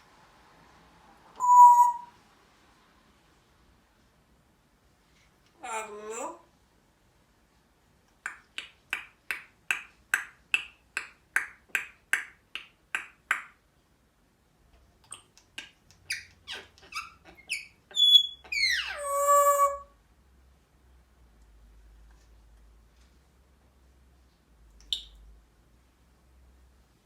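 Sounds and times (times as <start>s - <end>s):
parrot chirps: 1.4s - 2.1s, 15.1s - 19.9s, 24.8s - 25.2s
parrot falling whistle: 1.4s - 2.1s
parrot squeaky clicks: 24.8s - 25.2s.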